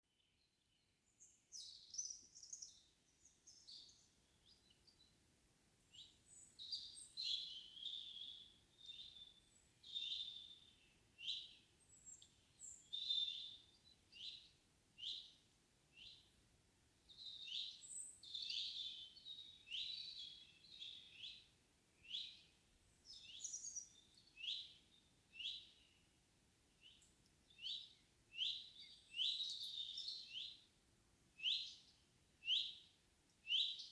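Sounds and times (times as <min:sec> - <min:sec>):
songbirds chirping and singing: 0:06.0 - 0:15.3, 0:17.1 - 0:22.4, 0:23.0 - 0:24.8.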